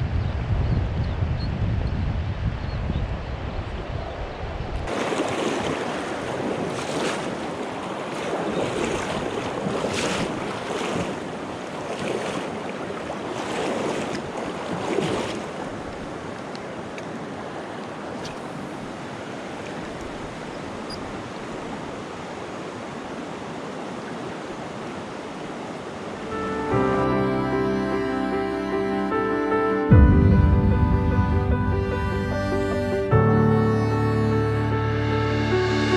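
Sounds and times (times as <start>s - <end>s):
stream water rushing: 4.9s - 30.0s.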